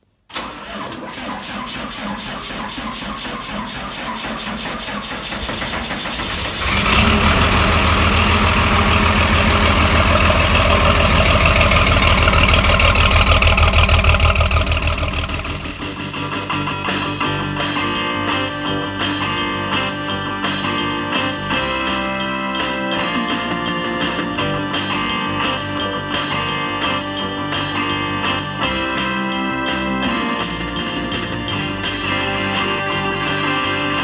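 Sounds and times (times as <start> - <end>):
diesel engine running: 0.3 - 16.0.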